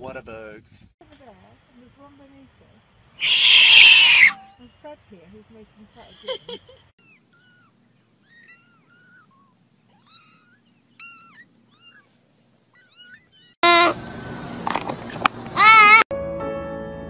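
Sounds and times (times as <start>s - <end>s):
cat mewing: 3.2s - 4.4s, 7.0s - 14.0s, 15.6s - 16.0s.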